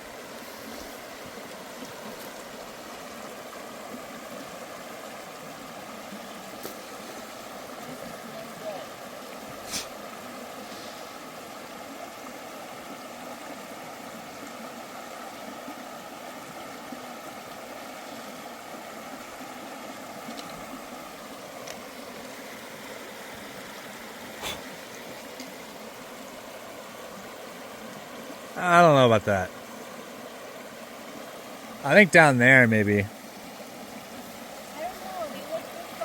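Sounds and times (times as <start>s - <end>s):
flowing stream water: 0.0s - 36.0s.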